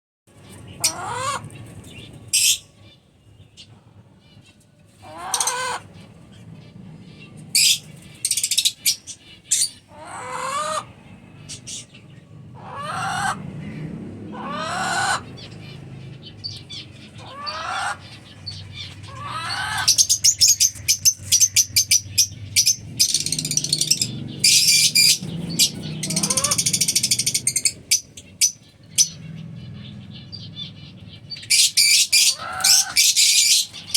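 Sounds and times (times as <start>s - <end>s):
lovebirds rapid high chattering: 5.2s - 12.1s, 14.6s - 33.9s
lovebirds shrill calls: 7.2s - 10.8s, 14.4s - 33.9s.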